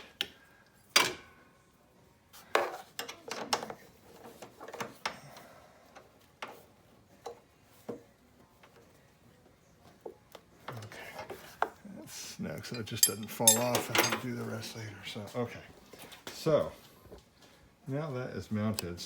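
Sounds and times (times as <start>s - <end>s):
tools clinking against metal: 12.6s - 14.4s.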